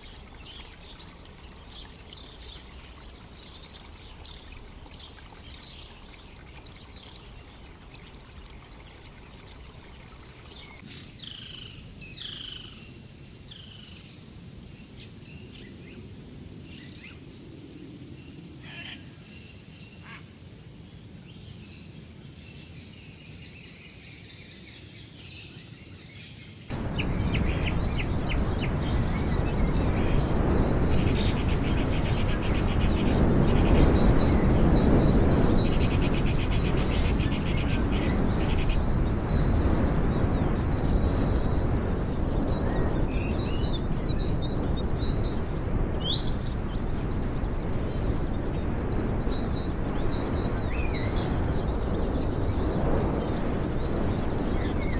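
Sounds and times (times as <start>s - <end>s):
loud steady rushing noise: 26.7s - 52.1s
birds calling and chirping: 26.7s - 54.9s.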